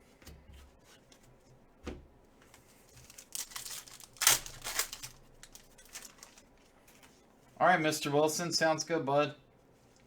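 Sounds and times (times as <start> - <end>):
card wrappers crinkling and tearing: 2.6 - 6.7.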